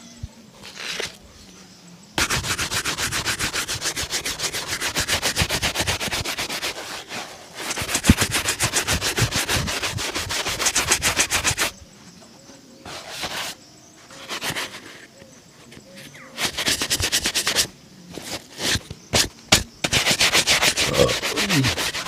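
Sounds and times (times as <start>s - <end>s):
buffing strokes on a shoe: 2.2s - 11.8s, 12.8s - 15.1s, 16.4s - 22.0s.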